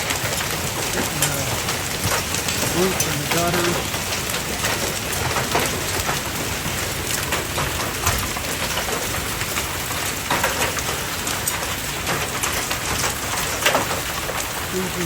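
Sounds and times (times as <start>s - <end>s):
hail clattering on roof and gutters: 0.0s - 15.0s.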